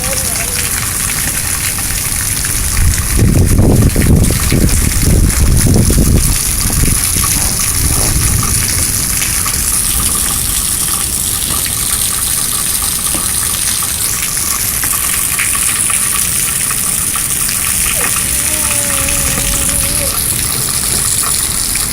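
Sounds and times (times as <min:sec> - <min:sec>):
heavy rain pouring: 0:00.0 - 0:21.9.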